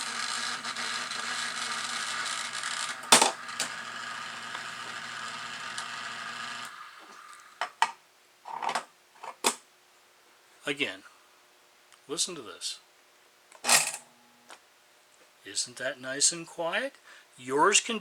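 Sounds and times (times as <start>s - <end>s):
toy log loader mechanism humming: 0.0s - 7.6s.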